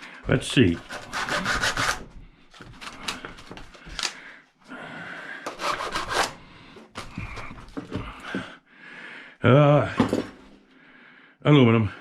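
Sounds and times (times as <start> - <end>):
hand tool scraping metal: 5.5 - 6.4.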